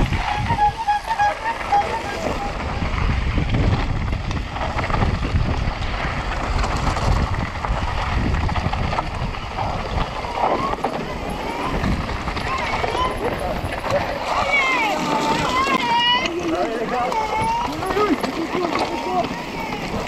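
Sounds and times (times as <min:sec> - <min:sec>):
wind rushing over microphone: 0:00.0 - 0:18.1
mountain bike rattling on rough ground: 0:00.0 - 0:20.0.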